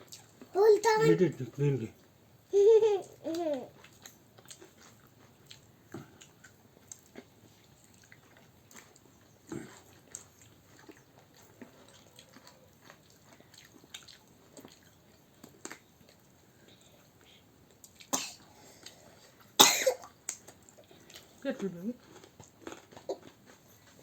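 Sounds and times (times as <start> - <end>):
chewing and biting: 3.7 - 16.4, 22.0 - 24.0.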